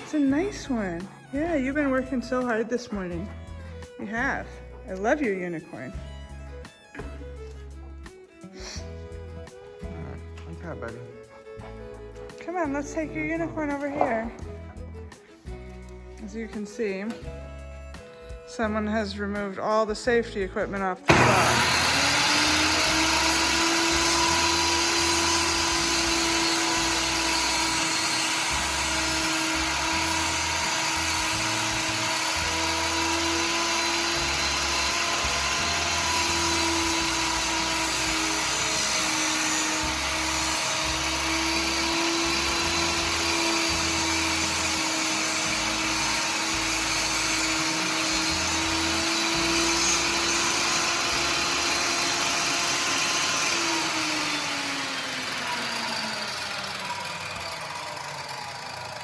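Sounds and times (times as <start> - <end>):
electric saw cutting wood: 0.0 - 19.8, 21.0 - 59.0.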